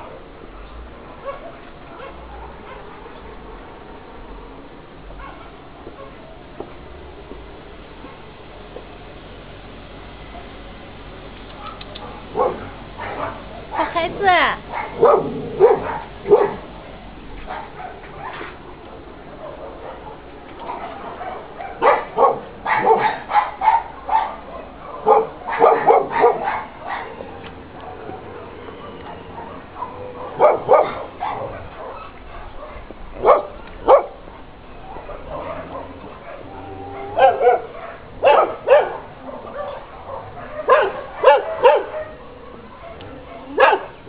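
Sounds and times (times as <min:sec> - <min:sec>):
dogs barking: 0:01.1 - 0:03.2, 0:05.2 - 0:06.2, 0:11.5 - 0:44.0.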